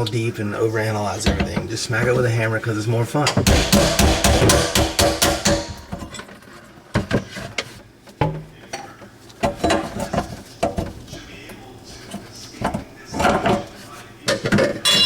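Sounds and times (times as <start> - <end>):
metallic clanks and knocks: 1.2 - 1.8, 3.3 - 6.3
hammer striking metal ring: 3.4 - 5.9.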